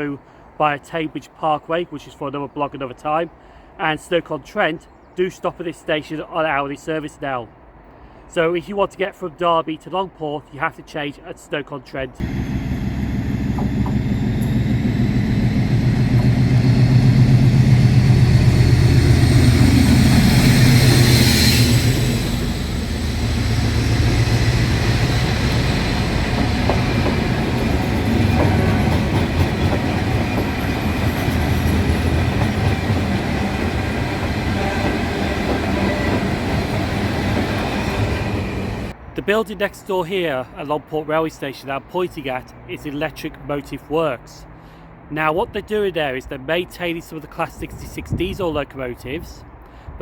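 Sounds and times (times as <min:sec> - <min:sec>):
train passing rumble: 0:12.2 - 0:39.0.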